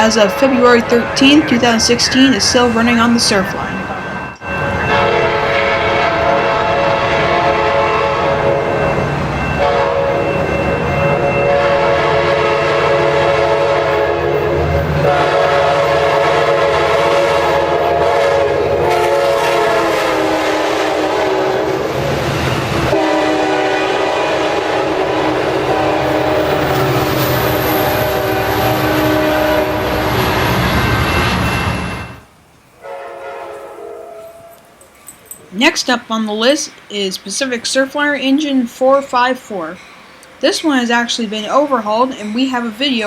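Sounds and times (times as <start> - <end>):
diesel locomotive rumble: 0.0 - 32.3
train horn chord blasts: 4.8 - 9.0, 9.6 - 10.4, 11.1 - 22.0, 22.8 - 30.6, 32.8 - 34.6.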